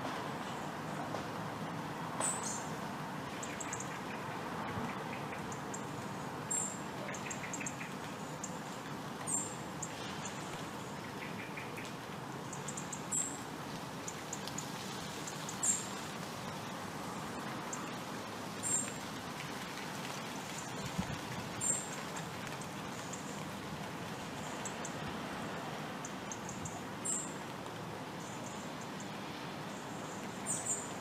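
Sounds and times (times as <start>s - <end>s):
steady background hiss: 0.0s - 31.0s.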